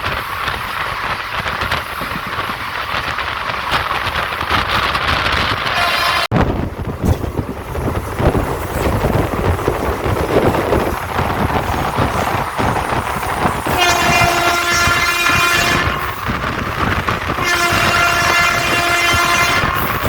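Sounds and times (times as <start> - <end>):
train wheels rumbling on track: 0.0 - 20.0
train horn held note: 13.7 - 16.0, 17.4 - 19.8.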